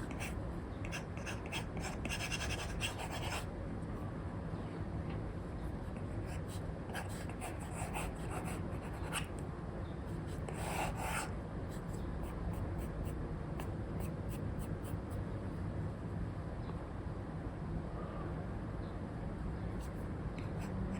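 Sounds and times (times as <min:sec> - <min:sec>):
stylus scratching on tablet: 0:00.0 - 0:03.5, 0:05.7 - 0:09.3, 0:10.1 - 0:13.2, 0:14.0 - 0:15.2.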